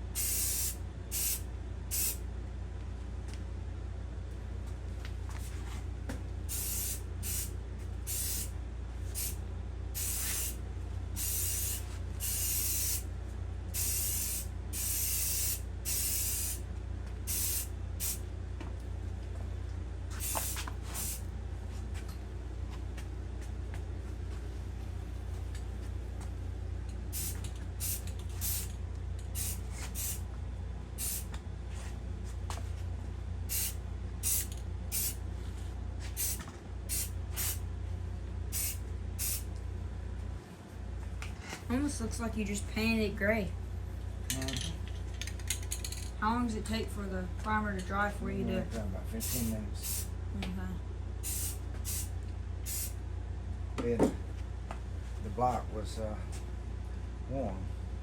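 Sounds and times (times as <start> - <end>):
steady low hum: 0.0 - 58.0
spray paint hissing bursts: 0.1 - 2.2, 6.5 - 7.5, 8.1 - 8.5, 9.1 - 9.4, 10.0 - 10.6, 11.2 - 13.0, 13.8 - 16.6, 17.3 - 18.2, 20.2 - 21.2, 27.1 - 28.7, 29.4 - 30.2, 31.0 - 31.3, 33.5 - 35.2, 36.2 - 37.6, 38.5 - 39.5, 49.2 - 50.1, 51.2 - 52.1, 52.7 - 53.0.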